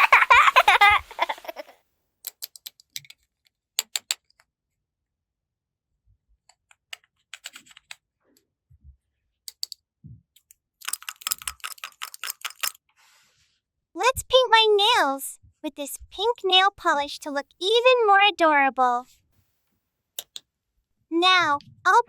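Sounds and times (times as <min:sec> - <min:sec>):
plastic toy pieces clicking: 0:02.2 - 0:04.5, 0:06.6 - 0:08.0, 0:09.5 - 0:09.8, 0:10.4 - 0:12.8, 0:20.2 - 0:20.4.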